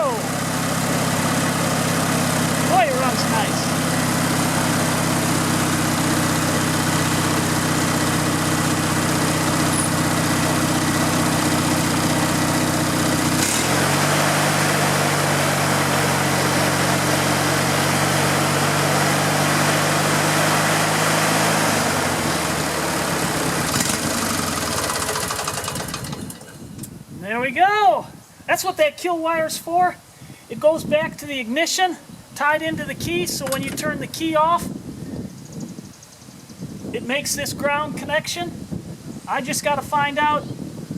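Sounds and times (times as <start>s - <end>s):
riding lawn mower engine: 0.0s - 27.0s, 33.0s - 34.7s.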